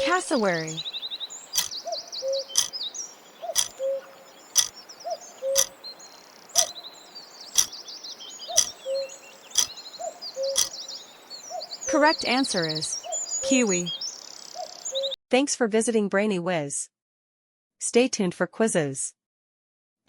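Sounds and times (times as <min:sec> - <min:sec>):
small birds chirping: 0:00.0 - 0:15.2.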